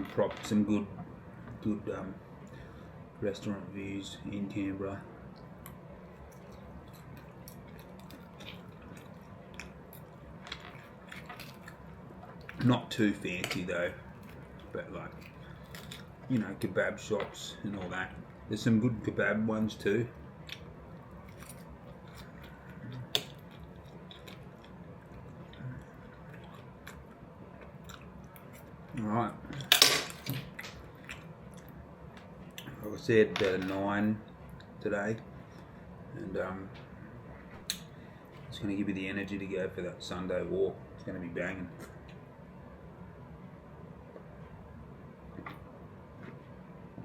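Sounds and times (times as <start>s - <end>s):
low background hum: 0.0s - 47.0s
man chewing food: 5.2s - 13.4s, 14.0s - 16.5s, 20.2s - 29.0s, 30.3s - 32.8s.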